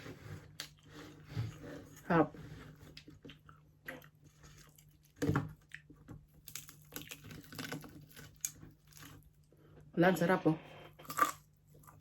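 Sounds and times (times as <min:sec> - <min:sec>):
crunchy chewing: 0:02.9 - 0:09.5.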